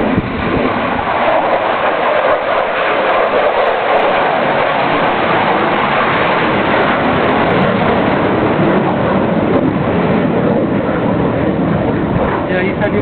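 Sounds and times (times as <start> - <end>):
fighter jet flying past: 0.0 - 13.0.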